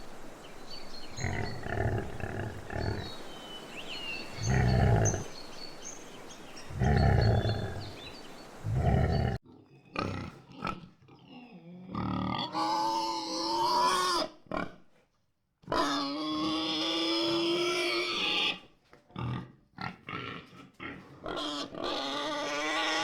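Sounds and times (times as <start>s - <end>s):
big cat growl: 1.2s - 3.2s, 4.4s - 5.3s, 6.7s - 12.5s
pigs grunting: 1.2s - 3.2s, 4.4s - 5.3s, 6.7s - 14.9s, 15.6s - 18.6s, 19.2s - 23.0s
pigs squealing: 8.7s - 14.7s, 15.7s - 18.6s, 19.2s - 23.0s.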